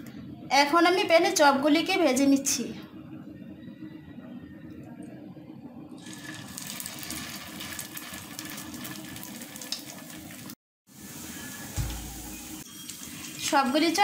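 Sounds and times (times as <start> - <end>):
patties sizzling in frying pan: 6.0 - 14.0.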